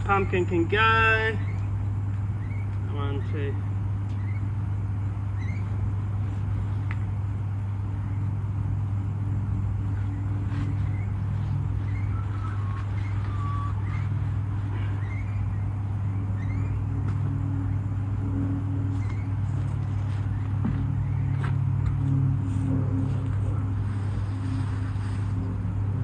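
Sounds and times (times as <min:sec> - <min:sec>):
low hum: 0:00.0 - 0:26.0
whistled tone: 0:11.8 - 0:14.1.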